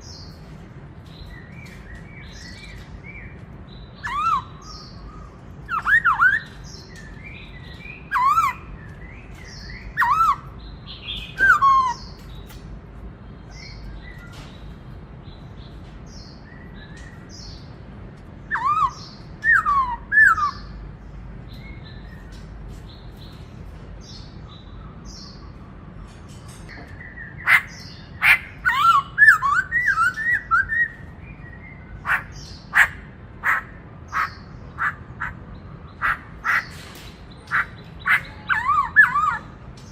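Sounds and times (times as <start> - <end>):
bird whistled song: 1.2 - 12.5, 18.5 - 20.8, 26.7 - 35.4, 37.4 - 39.6.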